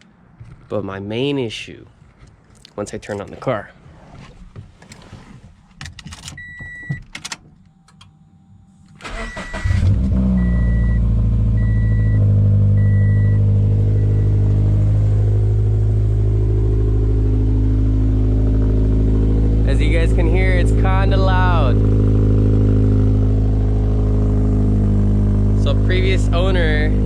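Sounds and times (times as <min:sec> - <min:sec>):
car engine starting and idling: 0:02.0 - 0:27.0
car chime beeps: 0:06.4 - 0:11.0, 0:11.6 - 0:14.6.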